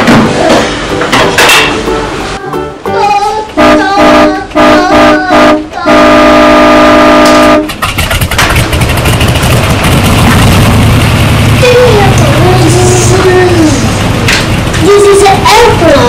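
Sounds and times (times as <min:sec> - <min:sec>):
vehicle horn honking: 0:03.6 - 0:07.7
engine running with rattle: 0:07.7 - 0:16.0.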